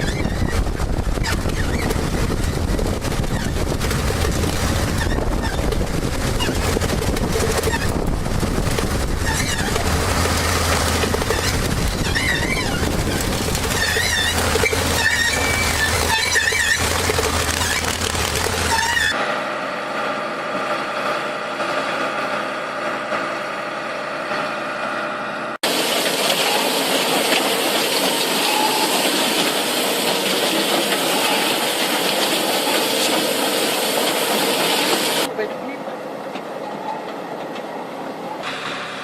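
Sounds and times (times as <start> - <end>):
heavy machinery engines running: 0.0 - 39.0
high wavering squeals: 11.3 - 17.0.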